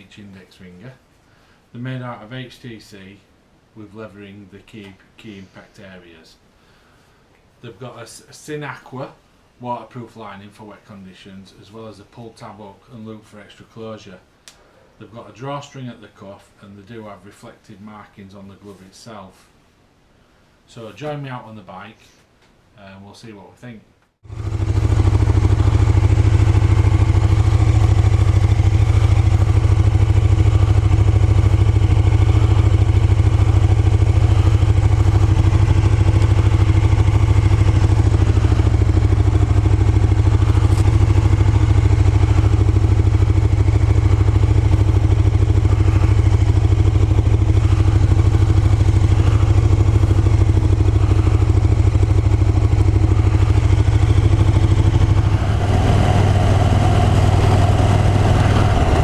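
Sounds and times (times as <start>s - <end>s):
motorcycle engine running: 24.2s - 59.0s.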